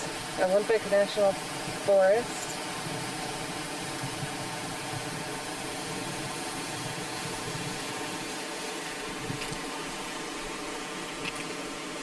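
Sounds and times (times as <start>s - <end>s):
stream rushing: 0.0s - 12.0s.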